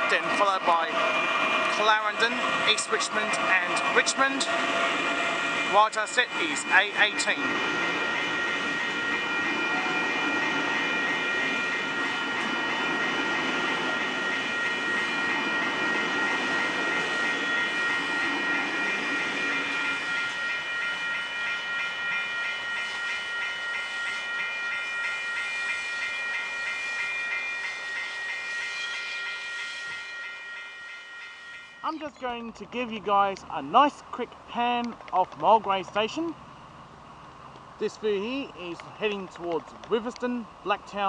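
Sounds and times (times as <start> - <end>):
electric train pulling away: 0.0 - 32.2
steady high-pitched tones: 0.0 - 34.2.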